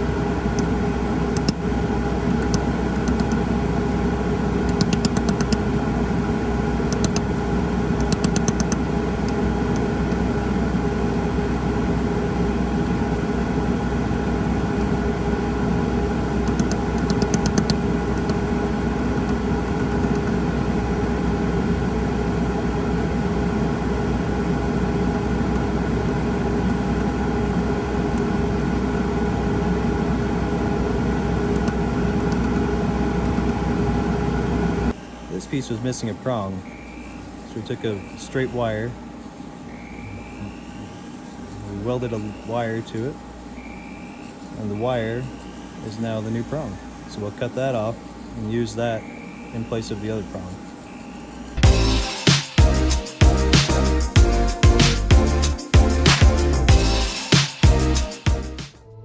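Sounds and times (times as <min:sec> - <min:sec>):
laser welder pulse ticks: 0:00.0 - 0:01.7, 0:02.3 - 0:03.5, 0:04.6 - 0:05.7, 0:06.8 - 0:07.3, 0:08.0 - 0:10.3, 0:16.4 - 0:20.4, 0:31.5 - 0:33.6
steady machine hum: 0:00.0 - 0:58.8.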